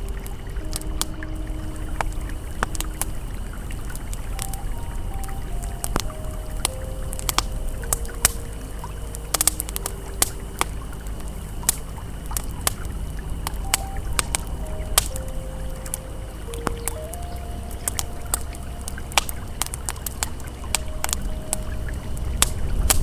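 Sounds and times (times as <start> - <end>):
ambient music: 0.0 - 23.0
campfire crackling and popping: 0.0 - 23.0
river flowing: 0.0 - 23.0.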